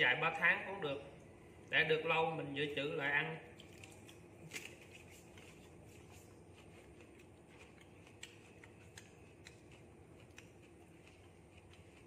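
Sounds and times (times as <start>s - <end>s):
person chewing food: 3.5s - 12.0s
chopsticks clicking: 7.8s - 10.7s.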